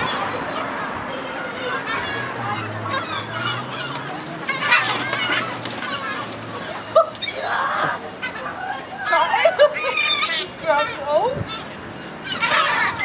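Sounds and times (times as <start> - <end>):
gulls squawking: 0.0 - 13.0.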